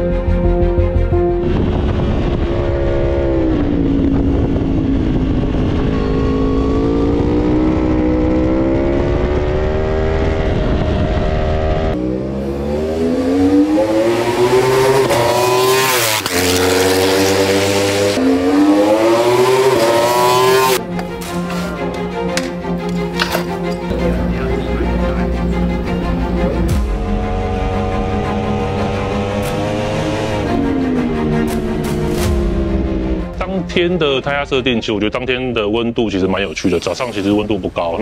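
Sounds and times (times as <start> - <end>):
motorcycle engine at high revs: 2.1 - 20.8, 27.0 - 32.6.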